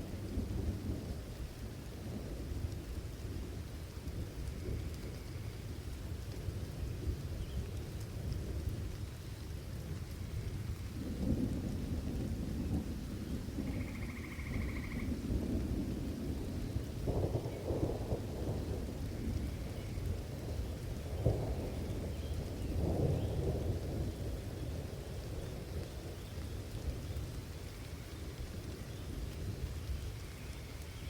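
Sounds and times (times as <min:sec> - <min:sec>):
steady rain: 0:00.0 - 0:31.0
thunder rumbling: 0:06.6 - 0:27.3.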